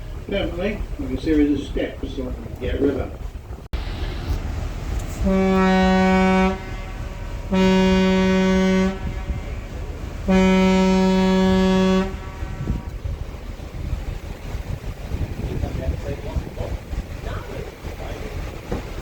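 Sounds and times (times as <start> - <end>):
boat engine: 0.0 - 19.0
water: 0.0 - 19.0
boat horn blasts: 4.8 - 13.3.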